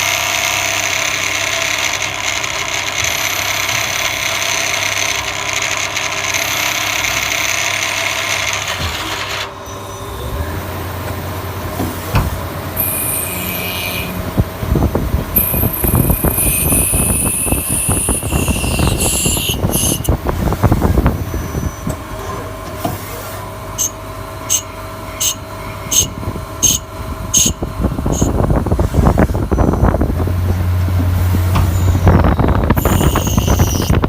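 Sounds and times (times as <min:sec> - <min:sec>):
lathe tool screeching: 0:00.0 - 0:10.6, 0:12.8 - 0:14.3, 0:15.4 - 0:20.1, 0:23.8 - 0:28.4, 0:31.4 - 0:34.0
low machine rumble: 0:00.0 - 0:34.0.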